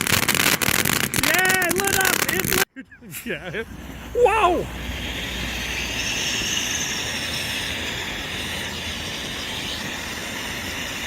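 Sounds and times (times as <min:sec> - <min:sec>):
firework whistling: 0:00.0 - 0:02.6, 0:03.7 - 0:11.0
firework fountain hissing: 0:00.0 - 0:02.7, 0:03.6 - 0:11.0.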